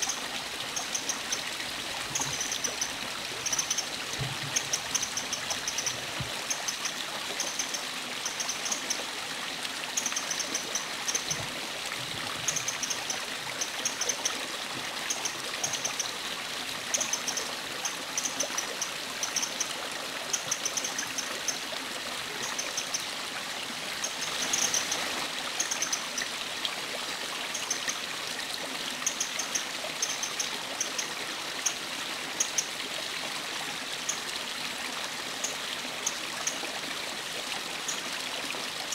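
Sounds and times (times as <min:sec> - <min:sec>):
wren call notes high ticks: 0:00.0 - 0:09.1, 0:09.9 - 0:11.4, 0:12.4 - 0:16.2, 0:16.9 - 0:21.6, 0:22.4 - 0:23.1, 0:24.0 - 0:26.3, 0:29.0 - 0:31.8
stream running: 0:00.0 - 0:38.9.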